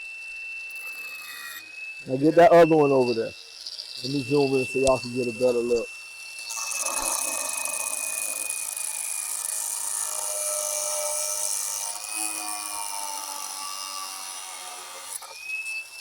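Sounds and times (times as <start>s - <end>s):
cutoff grinder whining: 0.2s - 16.0s
grinding disc cutting through nail: 0.6s - 16.0s.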